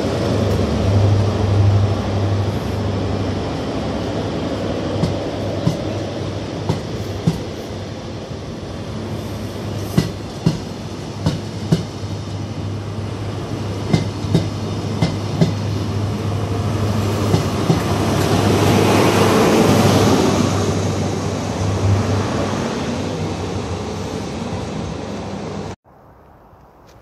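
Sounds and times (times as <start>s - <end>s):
diesel engine passing: 0.0s - 6.7s
train wheels clicking over rail joints: 4.9s - 6.0s, 6.6s - 7.6s, 9.7s - 12.1s, 13.8s - 15.7s, 17.3s - 18.7s.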